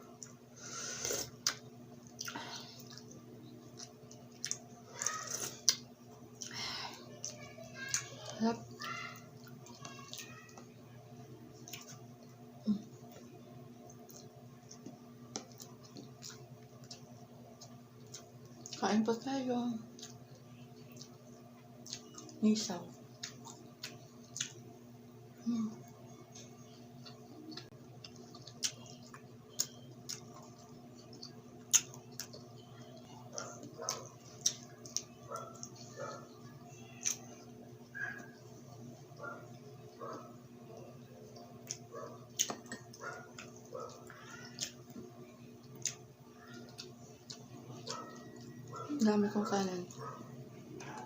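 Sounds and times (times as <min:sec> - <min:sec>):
faint low hum: 0:00.0 - 0:51.0
mouth clicks and chewing: 0:01.1 - 0:06.6, 0:11.6 - 0:18.8, 0:19.9 - 0:21.2, 0:21.8 - 0:22.4, 0:23.1 - 0:24.6, 0:25.8 - 0:38.4, 0:41.4 - 0:49.0.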